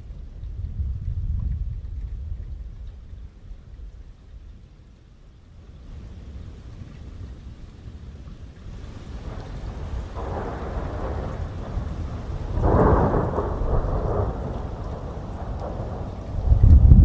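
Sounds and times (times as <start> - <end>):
thunder rumbling: 0.0 - 4.5, 8.8 - 17.0
heavy rain: 0.0 - 17.0.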